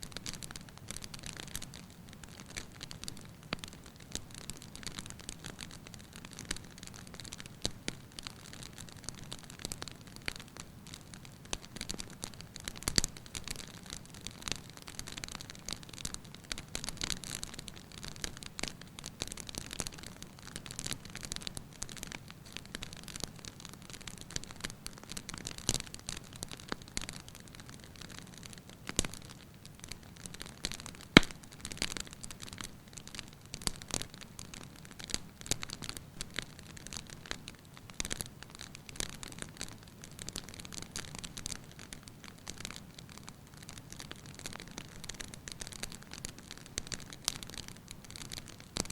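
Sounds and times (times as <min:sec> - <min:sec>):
firewood crackling and popping: 0:00.1 - 0:48.9
loud fire pop: 0:31.2 - 0:31.4.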